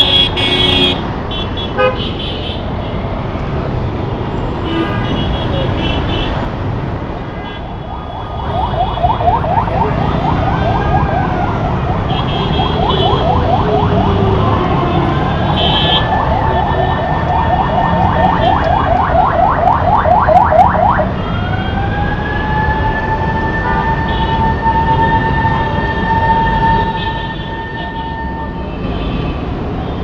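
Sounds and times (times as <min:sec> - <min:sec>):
road traffic rumble: 0:00.0 - 0:30.0
emergency vehicle siren: 0:07.6 - 0:29.1.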